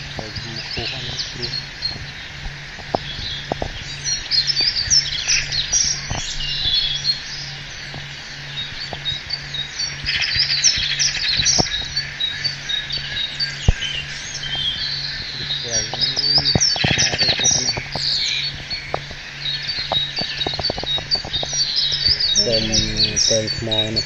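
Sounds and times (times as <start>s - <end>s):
birds chirping: 0.0s - 24.0s
faint pulsing low hum: 0.0s - 24.0s
fast buzzy bird trill: 0.0s - 24.0s.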